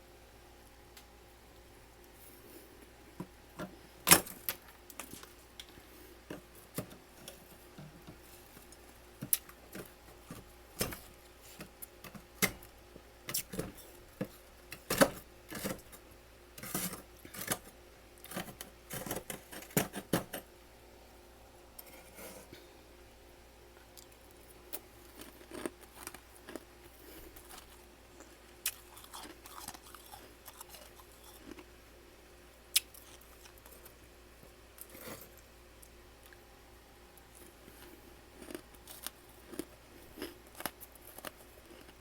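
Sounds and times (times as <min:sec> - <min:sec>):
crunching frost being chewed: 0:23.8 - 0:31.8, 0:32.7 - 0:36.4, 0:37.2 - 0:42.0.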